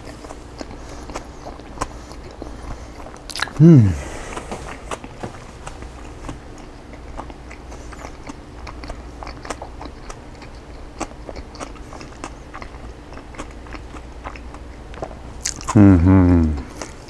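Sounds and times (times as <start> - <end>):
wet chewing mouth sounds: 0.0 - 17.0
crisp crunches of food: 8.0 - 15.8.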